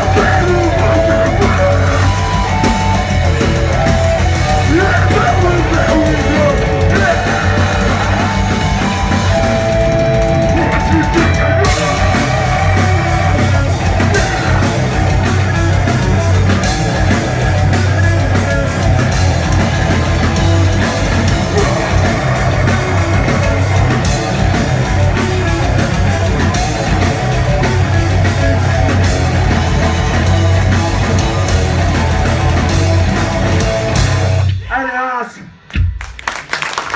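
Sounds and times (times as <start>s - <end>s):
person singing: 0.0s - 2.4s, 3.7s - 9.1s, 14.0s - 15.4s, 21.4s - 23.6s
rock band playing live: 0.0s - 36.9s.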